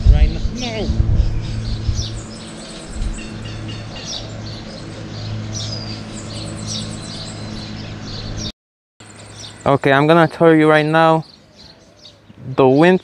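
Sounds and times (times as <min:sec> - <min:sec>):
steady low hum: 0:00.0 - 0:08.5
birds chirping and calling: 0:00.0 - 0:13.0
fast high bird trill: 0:00.4 - 0:12.2.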